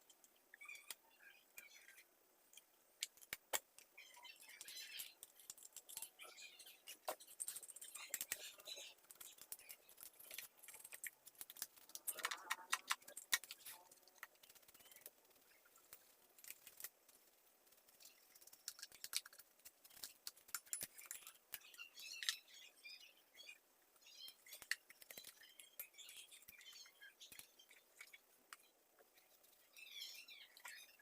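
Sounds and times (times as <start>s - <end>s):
small parts clicking and rattling: 1.6s - 22.5s.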